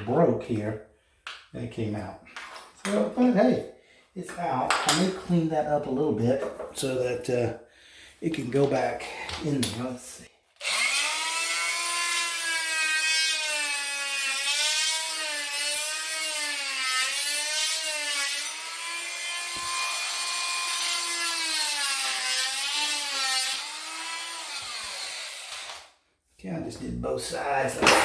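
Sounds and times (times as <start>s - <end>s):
oscillating multi-tool cutting wood: 10.6s - 25.9s.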